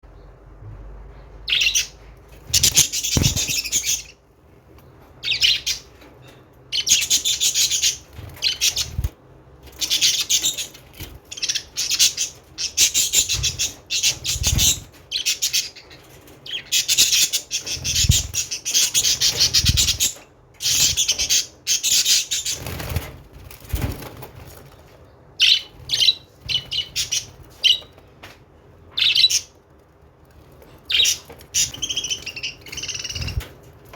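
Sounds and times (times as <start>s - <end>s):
quick bird chirps: 2.5s - 4.1s.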